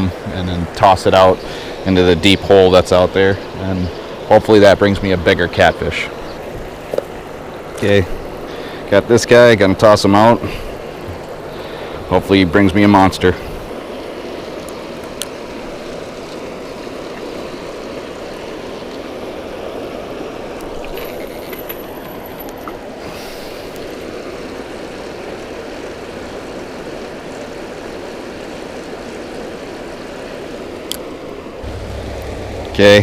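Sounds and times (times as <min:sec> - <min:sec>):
thin high whine: 0:31.6 - 0:33.0.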